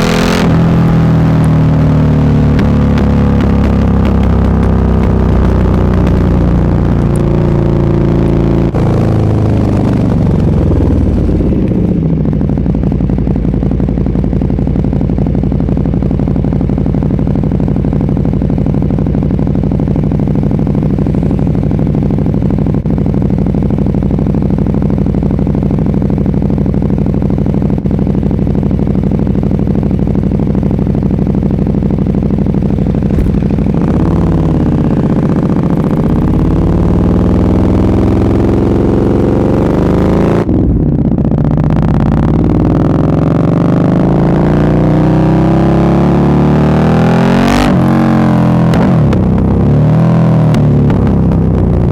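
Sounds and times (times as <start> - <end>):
motorcycle engine idling and revving: 0.0 - 51.9.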